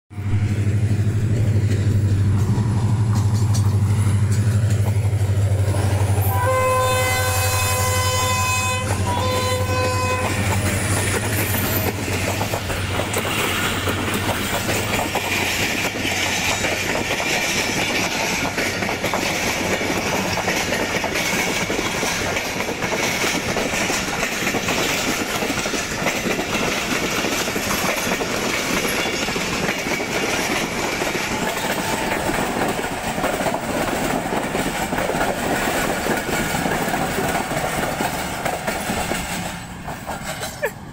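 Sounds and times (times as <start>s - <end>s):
diesel locomotive engine hum: 0.1s - 40.9s
train wheels clattering over rail joints: 0.5s - 6.3s, 7.8s - 40.7s
train horn blasts: 5.8s - 11.8s.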